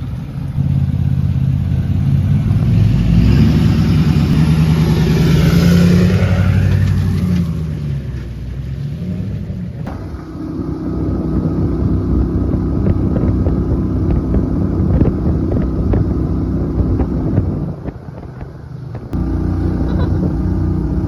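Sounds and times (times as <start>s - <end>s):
wind buffeting microphone: 9.4s - 21.0s
boat motor running: 9.9s - 18.3s, 18.9s - 21.0s.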